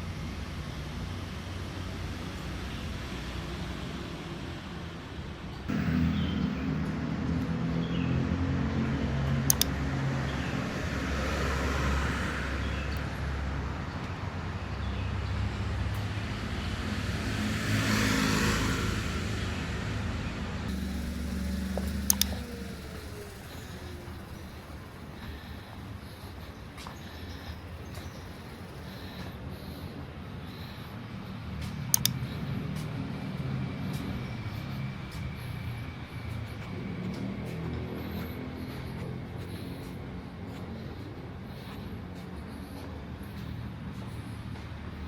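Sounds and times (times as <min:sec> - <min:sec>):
vehicle engines running: 0:00.0 - 0:45.0
vehicles passing: 0:00.0 - 0:45.0
sharp clicks: 0:09.3 - 0:10.0, 0:20.7 - 0:25.4, 0:31.6 - 0:32.5.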